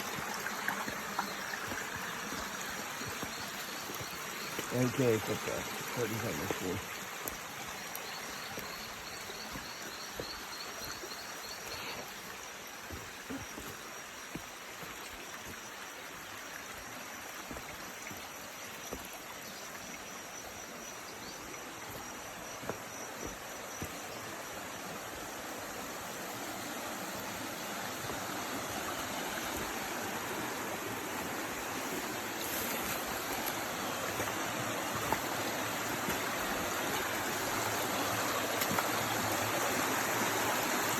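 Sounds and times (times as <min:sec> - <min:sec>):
floodwater rushing: 0:00.0 - 0:09.9, 0:23.3 - 0:40.9.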